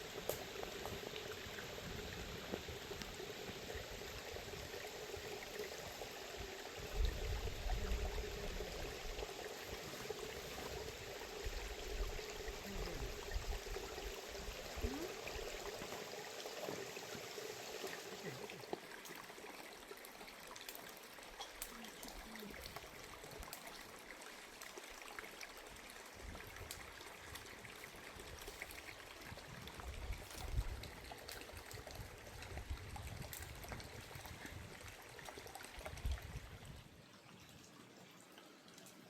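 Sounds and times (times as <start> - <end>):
water flowing and bubbling: 0.0 - 39.0.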